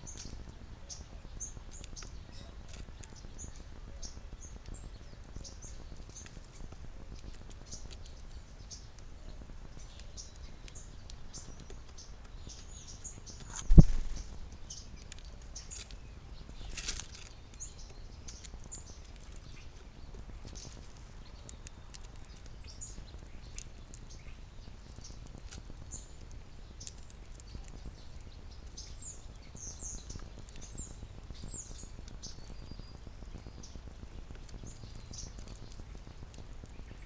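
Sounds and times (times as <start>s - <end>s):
small birds chirping: 0.0s - 37.0s
rushing flutter: 13.5s - 14.4s.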